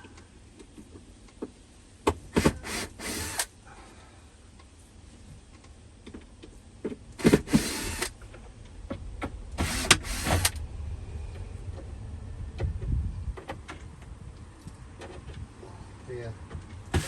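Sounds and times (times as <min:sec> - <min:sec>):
cordless power drill: 0:02.4 - 0:03.5, 0:07.2 - 0:08.2, 0:09.6 - 0:10.6.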